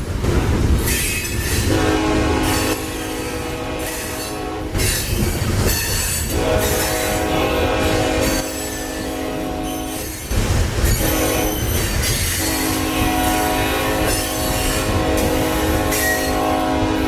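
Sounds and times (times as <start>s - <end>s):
passing train rumble: 0.0s - 17.0s
locomotive air horn blasts: 1.6s - 4.8s, 6.2s - 10.3s, 11.0s - 17.0s.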